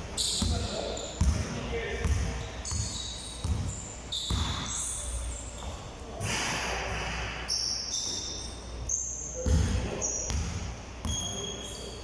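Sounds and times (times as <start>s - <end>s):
basketballs bouncing on court: 0.3s - 4.9s, 9.4s - 11.5s
short high-pitched squeaks: 2.4s - 5.8s, 7.5s - 9.4s, 11.1s - 12.0s.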